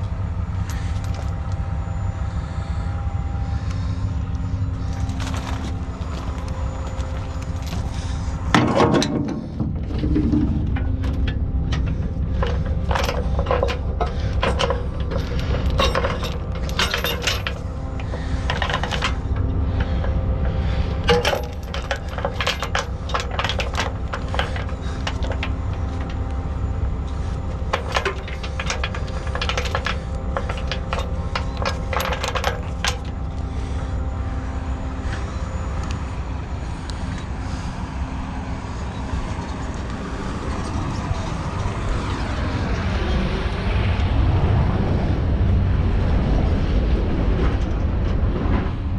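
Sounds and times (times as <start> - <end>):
truck diesel engine running: 0.0 - 46.3
metallic clinks and clanks: 4.8 - 33.5.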